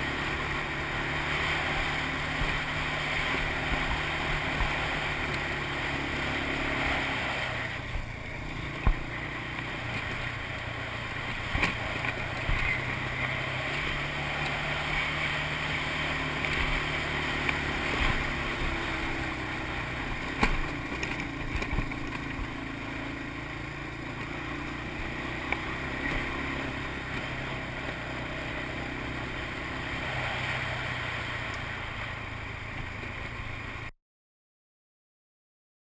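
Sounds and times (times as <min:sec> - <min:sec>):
atv engine running: 0:00.0 - 0:33.9
knocks and clatter from rough ground: 0:08.5 - 0:09.2, 0:11.3 - 0:12.8, 0:20.2 - 0:22.5.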